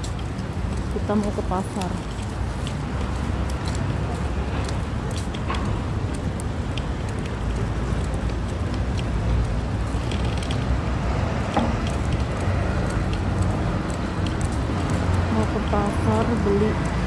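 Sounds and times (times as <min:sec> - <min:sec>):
faint clicks: 0:00.0 - 0:17.0
low street rumble: 0:00.0 - 0:17.0.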